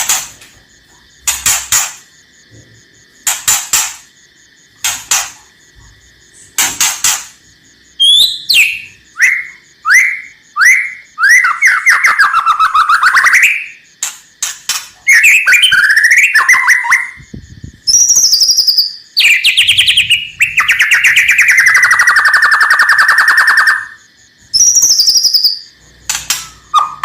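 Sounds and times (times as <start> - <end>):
bird whistled notes: 8.0 - 13.8, 17.9 - 24.0, 26.4 - 27.0
bird harsh rasping calls: 17.9 - 24.0, 24.6 - 27.0.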